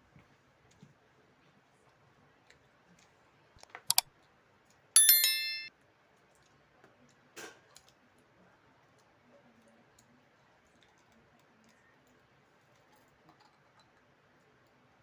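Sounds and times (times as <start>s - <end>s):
metal clink ringing: 5.0s - 5.7s
tableware clicks: 5.0s - 5.7s.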